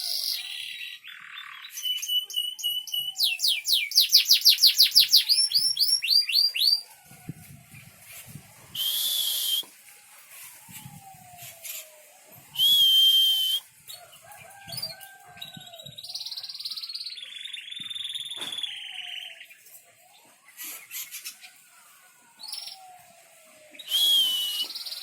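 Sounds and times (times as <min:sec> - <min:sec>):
songbird whistled notes: 0:00.0 - 0:06.8, 0:08.7 - 0:09.8, 0:10.4 - 0:13.7, 0:23.8 - 0:25.0
harsh hissing bird calls: 0:08.8 - 0:09.6, 0:10.3 - 0:13.5.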